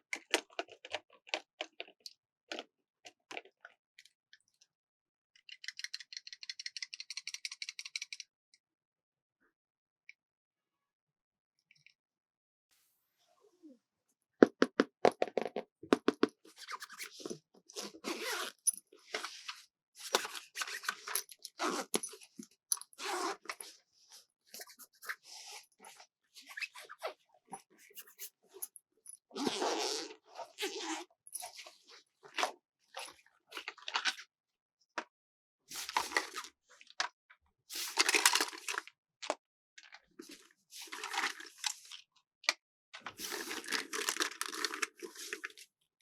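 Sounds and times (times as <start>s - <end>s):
plastic packaging crinkling: 43.3s - 44.9s.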